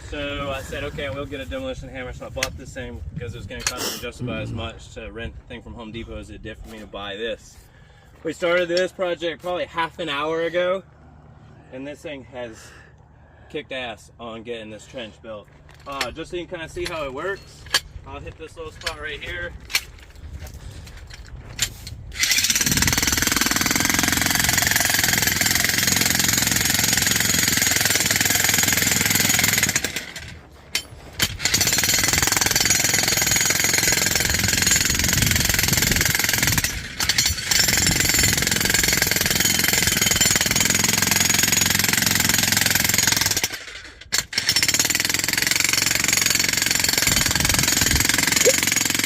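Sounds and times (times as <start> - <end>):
demolition hammer chiseling ground: 19.6 - 49.0.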